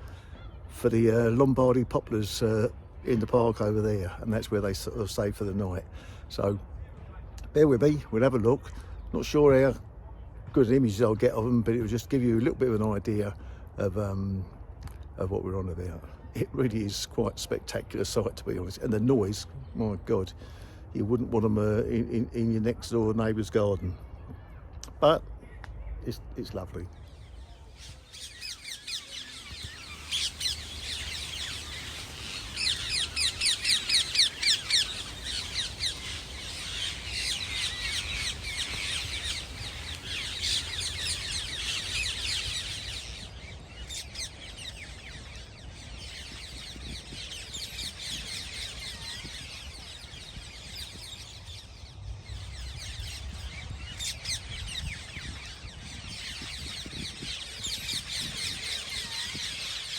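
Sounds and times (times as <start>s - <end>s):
parakeets screeching: 27.8s - 59.9s.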